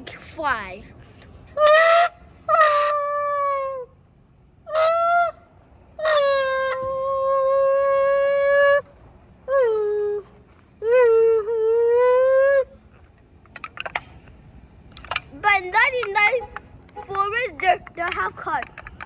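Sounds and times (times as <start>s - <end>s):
voice blown through bottle honking: 16.2s - 17.4s.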